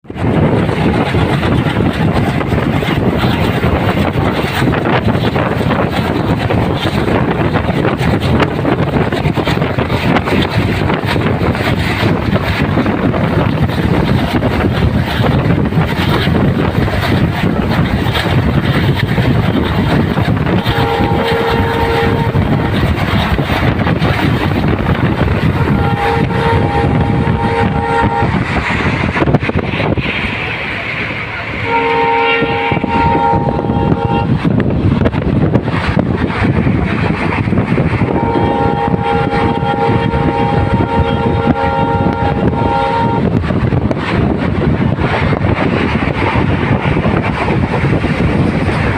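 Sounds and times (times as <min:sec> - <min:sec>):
train rumbling along track: 0:00.0 - 0:48.9
train horn blast: 0:20.4 - 0:22.9, 0:25.0 - 0:28.4, 0:31.4 - 0:34.5, 0:38.0 - 0:43.4.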